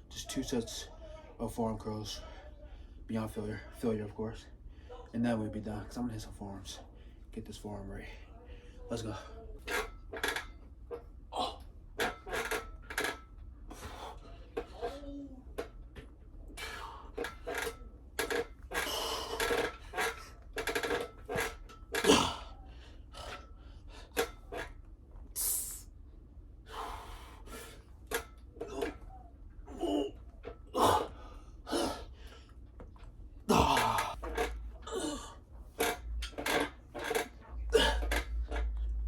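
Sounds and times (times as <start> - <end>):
man breathing heavily: 13.7 - 14.6, 16.5 - 17.6, 18.8 - 20.4, 26.6 - 28.0, 29.7 - 32.6, 33.4 - 35.4
man grunting: 22.0 - 22.6, 29.7 - 32.1, 33.5 - 34.2.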